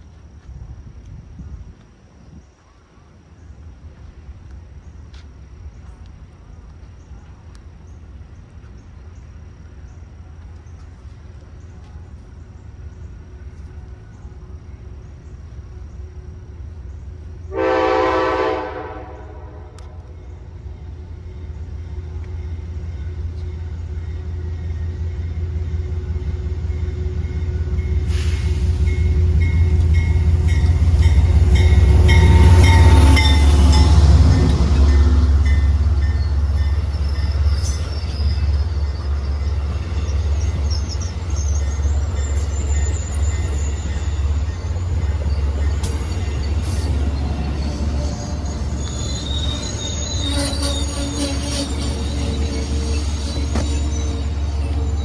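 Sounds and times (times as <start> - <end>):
wheel and rail noise: 0.0 - 17.6, 18.3 - 55.0
train rumble: 0.0 - 55.0
train horn blast: 17.5 - 20.3, 50.2 - 54.8.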